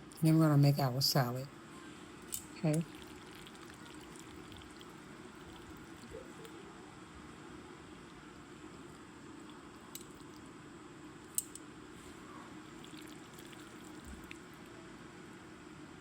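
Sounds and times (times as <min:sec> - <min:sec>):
wet squishing of noodles: 0:02.2 - 0:06.6, 0:09.4 - 0:10.6, 0:12.1 - 0:14.8.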